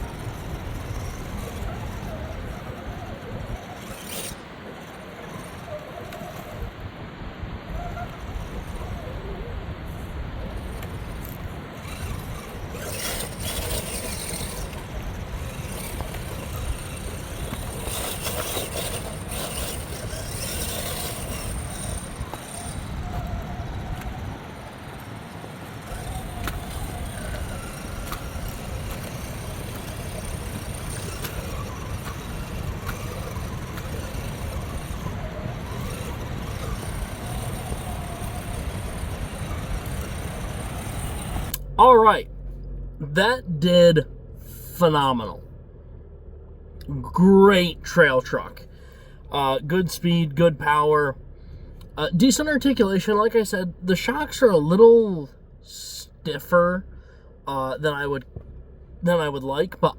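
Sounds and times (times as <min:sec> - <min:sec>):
tyres scrabbling over dirt and rock: 0:00.0 - 0:42.2
electric motor whine: 0:00.0 - 0:42.7
steady low rumble: 0:06.5 - 0:59.9.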